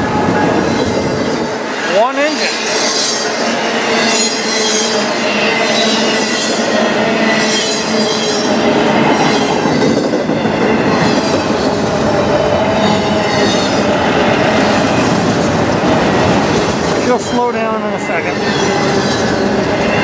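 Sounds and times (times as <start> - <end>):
high wheel squeal: 0.4 - 10.0.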